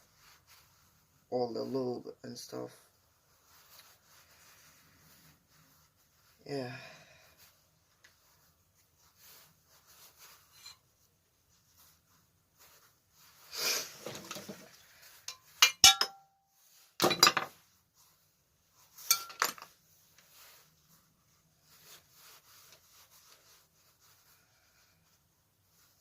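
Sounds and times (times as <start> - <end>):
metal clinks and clatter: 19.0 - 19.7.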